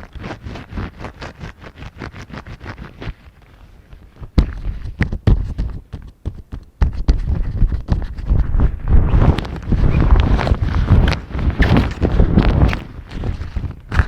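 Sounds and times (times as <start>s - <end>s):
fingers tapping on microphone: 4.4s - 8.3s
heavy bumps and rubbing: 4.4s - 14.0s.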